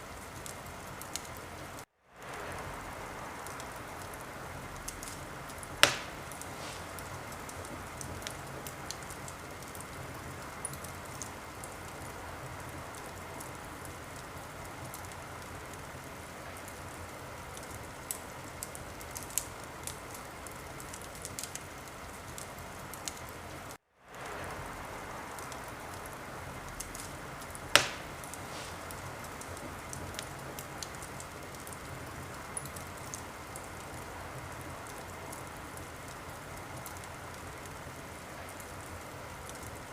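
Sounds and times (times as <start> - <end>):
wood fire crackling: 0.0 - 39.9
loud fire pops: 0.4 - 13.9, 24.1 - 33.3.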